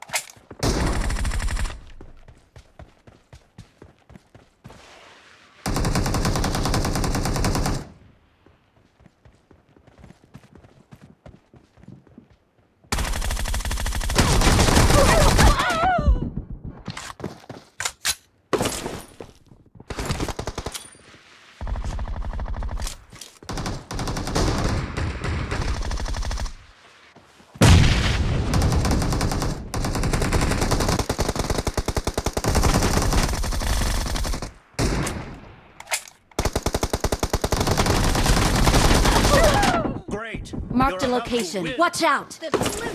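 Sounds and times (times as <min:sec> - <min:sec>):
video game automatic gunfire: 0:05.6 - 0:07.9, 0:12.9 - 0:15.5, 0:23.5 - 0:26.6, 0:28.5 - 0:34.9, 0:36.4 - 0:39.6.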